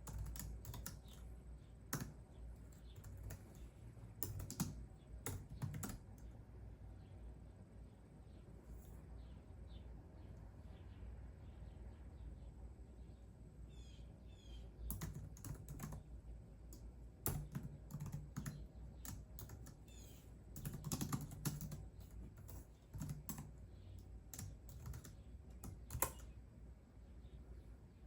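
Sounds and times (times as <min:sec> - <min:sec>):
computer keyboard typing: 0:00.0 - 0:01.3, 0:01.9 - 0:06.3, 0:14.9 - 0:16.1, 0:16.7 - 0:26.4.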